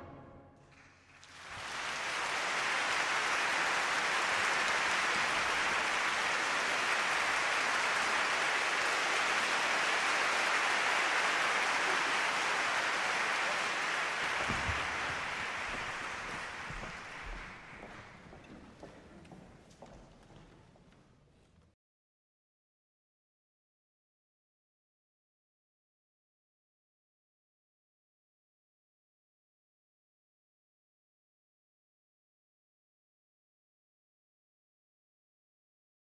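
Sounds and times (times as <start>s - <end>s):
audience applauding: 0.7s - 18.9s.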